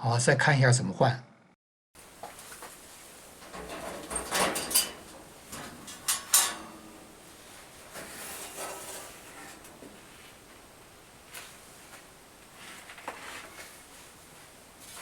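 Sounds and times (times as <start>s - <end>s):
soft rustling: 2.0s - 15.0s
filter scraping: 2.6s - 10.7s.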